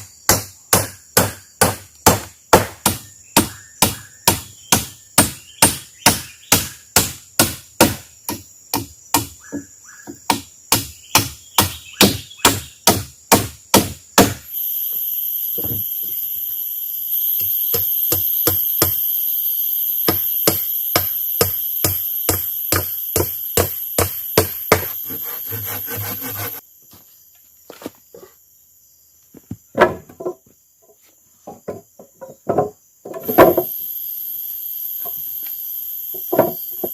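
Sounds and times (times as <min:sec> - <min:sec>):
insect buzzing: 0:00.0 - 0:29.8, 0:30.5 - 0:36.9
blows striking wood: 0:20.0 - 0:26.6.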